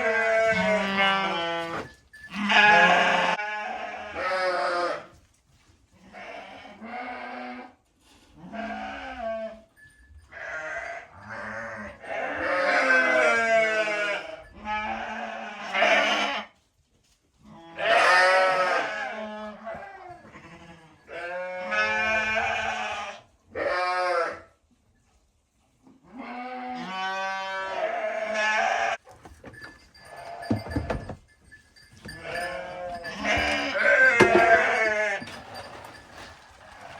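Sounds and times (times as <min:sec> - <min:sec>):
sheep bleating: 0:00.0 - 0:05.1, 0:06.0 - 0:07.8, 0:08.5 - 0:09.6, 0:10.4 - 0:16.5, 0:17.5 - 0:24.5, 0:26.2 - 0:29.0, 0:32.0 - 0:35.8.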